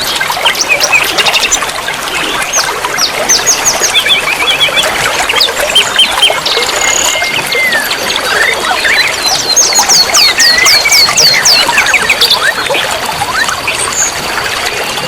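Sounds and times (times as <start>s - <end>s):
songbirds chirping and singing: 0.0s - 14.5s
running water trickling: 0.0s - 15.0s.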